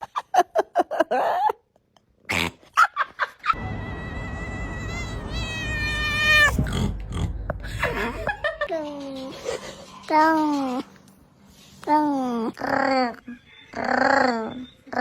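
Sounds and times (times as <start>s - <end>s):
cat meowing long and high: 3.6s - 6.6s
low rumble: 3.6s - 8.7s.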